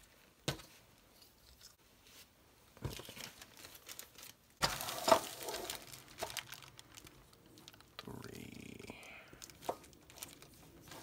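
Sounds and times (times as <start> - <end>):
crinkly clatter: 2.8 - 8.2, 9.4 - 11.0.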